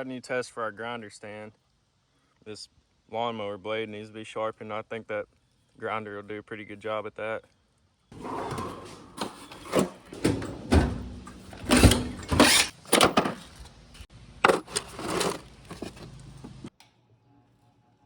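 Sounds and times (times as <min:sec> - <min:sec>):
objects clunking and scraping: 0:08.1 - 0:16.7.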